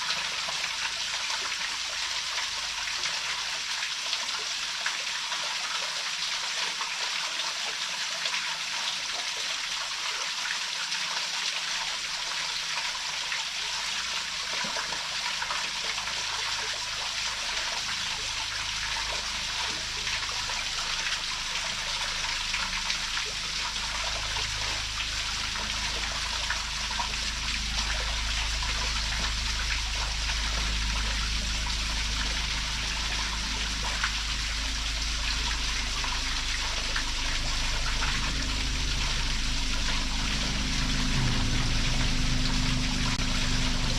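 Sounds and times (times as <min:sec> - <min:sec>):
low rumble: 0:18.8 - 0:43.9.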